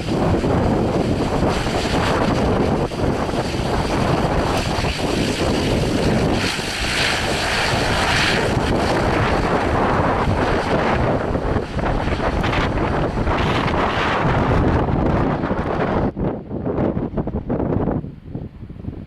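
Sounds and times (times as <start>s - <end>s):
rushing hiss: 0.0s - 10.8s
wind buffeting microphone: 0.0s - 19.0s.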